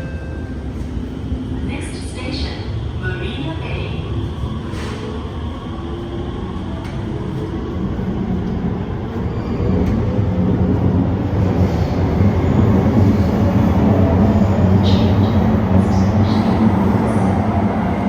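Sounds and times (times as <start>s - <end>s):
metro train rumbling: 0.0s - 18.0s.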